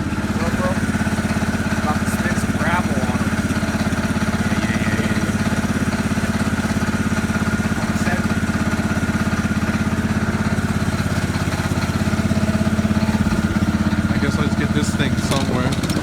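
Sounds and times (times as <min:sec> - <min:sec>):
small engine idling: 0:00.0 - 0:16.0.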